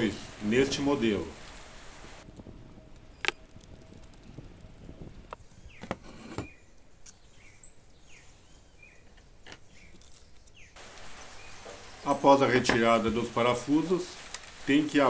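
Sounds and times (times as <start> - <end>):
faint bird chirps: 5.4 - 12.2.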